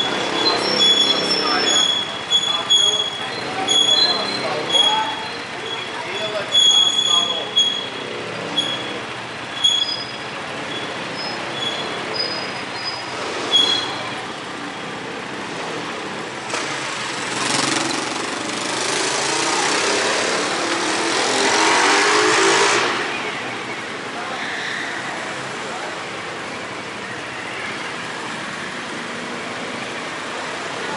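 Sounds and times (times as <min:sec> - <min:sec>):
high squeaks: 0:00.0 - 0:15.0.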